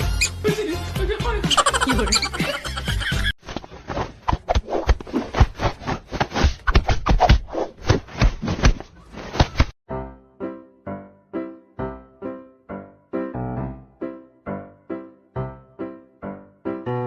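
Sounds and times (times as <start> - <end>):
piano music: 9.9 - 17.0.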